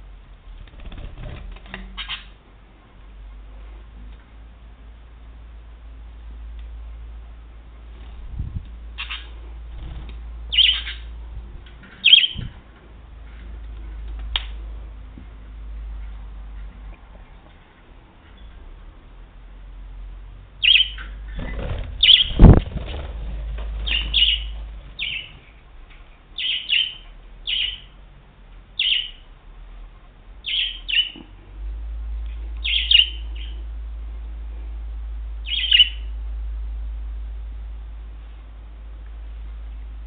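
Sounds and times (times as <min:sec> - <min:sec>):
budgerigar chirping: 0:02.0 - 0:02.3, 0:09.0 - 0:09.3, 0:10.5 - 0:11.1, 0:12.0 - 0:12.4, 0:20.6 - 0:21.2, 0:22.0 - 0:22.4, 0:23.9 - 0:25.3, 0:26.4 - 0:27.9, 0:28.8 - 0:29.2, 0:30.4 - 0:31.2, 0:32.6 - 0:33.6, 0:35.5 - 0:36.1.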